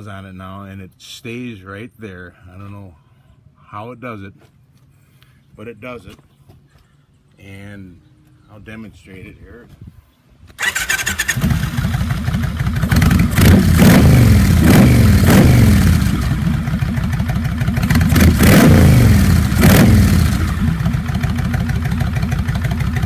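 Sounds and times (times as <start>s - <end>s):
motorcycle engine idling and revving: 10.6s - 23.0s.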